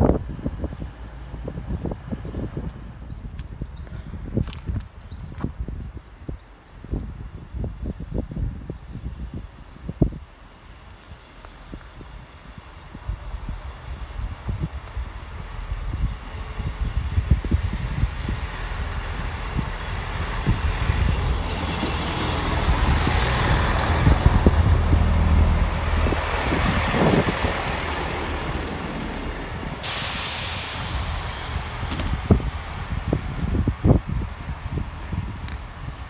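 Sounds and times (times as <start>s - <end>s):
train engine drone: 0.0s - 36.0s
sudden hiss: 29.6s - 33.0s.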